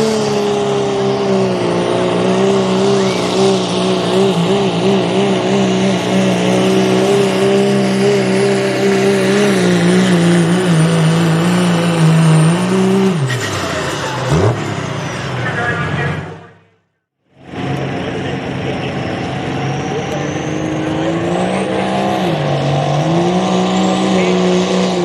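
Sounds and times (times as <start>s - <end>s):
diesel truck engine at full throttle: 0.0s - 25.0s
thin high turbo whistle: 2.9s - 3.6s.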